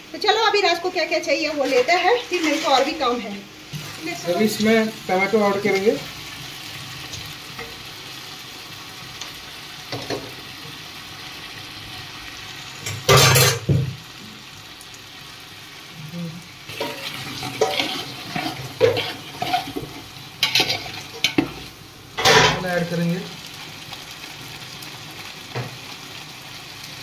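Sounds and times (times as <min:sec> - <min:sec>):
tomatoes sizzling in oil: 0:00.0 - 0:27.0
spoon scraping a metal pot: 0:16.8 - 0:21.5.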